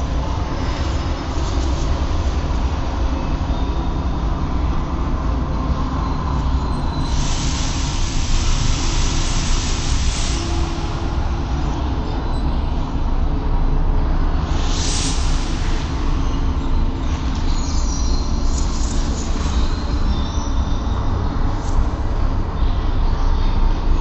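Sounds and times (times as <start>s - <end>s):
train rumbling on rails: 0.0s - 24.0s
hiss: 7.0s - 11.8s, 14.4s - 17.6s.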